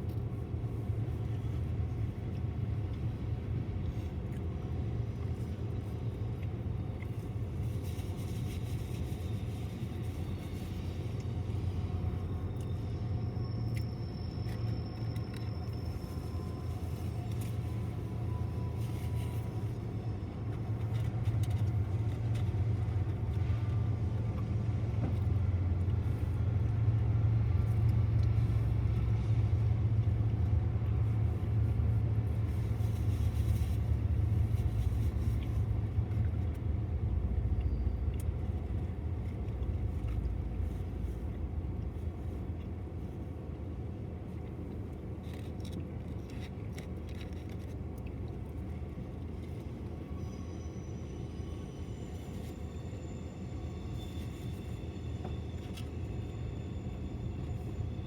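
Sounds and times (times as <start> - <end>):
freight train rumbling past: 50.1 - 58.0.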